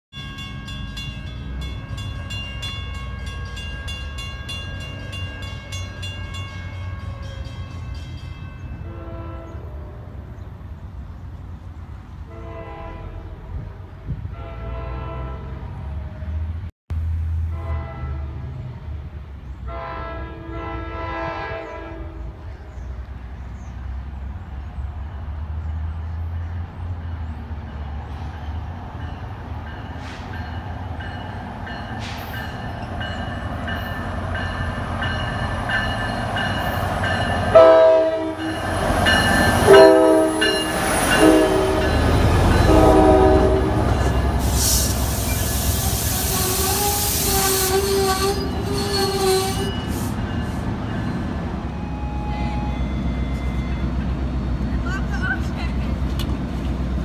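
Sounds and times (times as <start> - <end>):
diesel locomotive engine rumble: 0.2 - 57.0
train horn blasts: 8.8 - 10.2, 12.3 - 15.8, 17.4 - 18.6, 19.7 - 22.4, 37.5 - 38.7, 39.6 - 50.1
hiss of wheels and brakes: 29.9 - 30.4, 32.0 - 32.5, 44.3 - 50.2.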